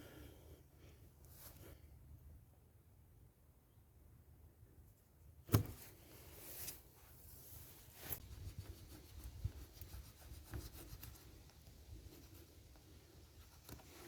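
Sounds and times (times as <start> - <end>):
faint rubbing and scraping: 5.6 - 14.0.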